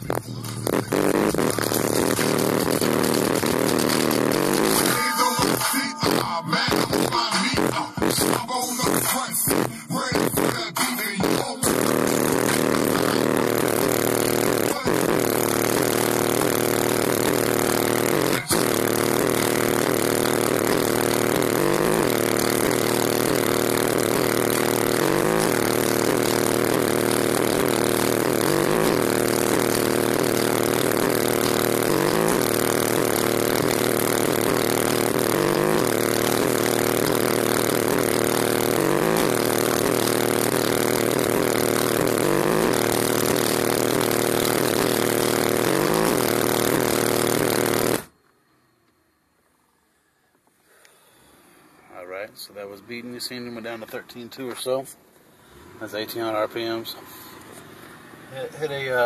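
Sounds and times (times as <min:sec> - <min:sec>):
car engine running: 0:00.0 - 0:05.7, 0:11.6 - 0:48.1
bass-heavy song on subwoofers: 0:00.0 - 0:48.1.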